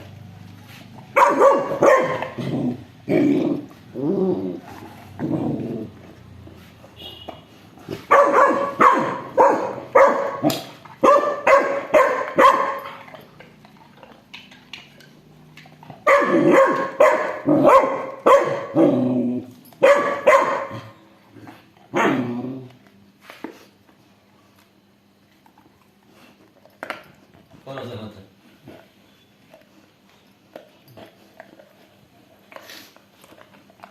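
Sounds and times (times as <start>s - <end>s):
dog barking: 1.1s - 2.4s, 8.0s - 12.9s, 16.0s - 18.8s, 19.8s - 21.0s, 21.9s - 22.2s.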